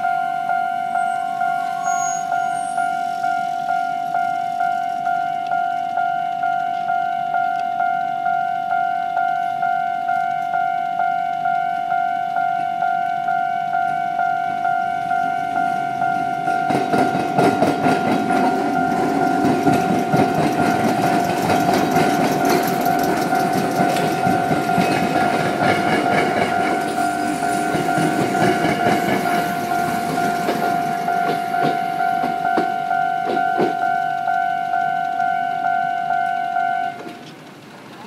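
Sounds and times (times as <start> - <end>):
two-tone level-crossing bell: 0.0 - 37.0
train wheels clattering over crossing: 13.9 - 37.7.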